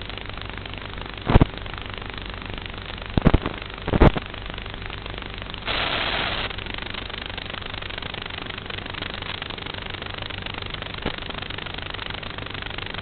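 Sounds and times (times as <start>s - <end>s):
burst of hiss: 5.7s - 6.5s.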